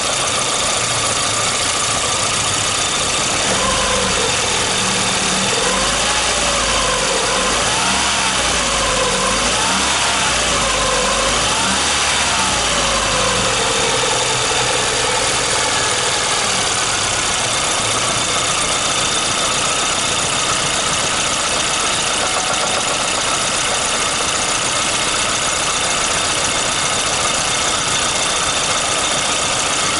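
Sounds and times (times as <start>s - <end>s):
car engine running: 0.0s - 29.9s
engine tapping knock: 17.5s - 29.9s.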